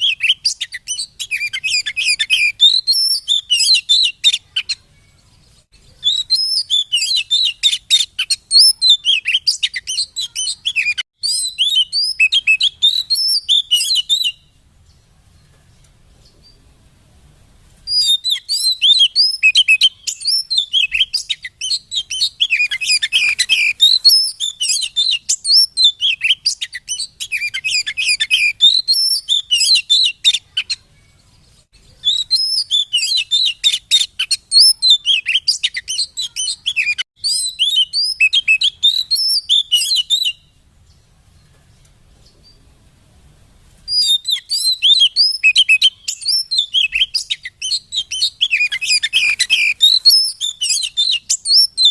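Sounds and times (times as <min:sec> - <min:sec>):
bird singing chirps and whistles: 0:00.0 - 0:15.0, 0:17.9 - 0:41.0, 0:43.9 - 0:51.9.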